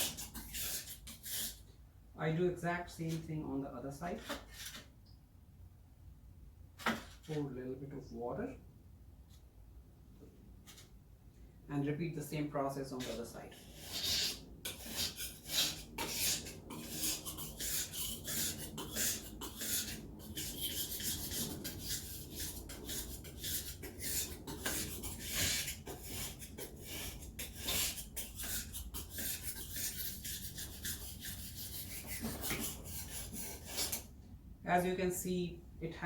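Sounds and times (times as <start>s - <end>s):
knife scraping on whetstone: 0.0s - 1.6s, 13.0s - 34.0s.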